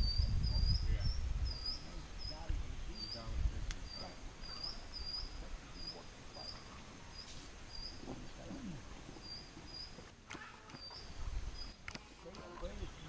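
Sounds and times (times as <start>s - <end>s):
small bird chirping: 0.0s - 10.1s, 10.7s - 11.8s
outdoor background noise: 0.0s - 13.0s.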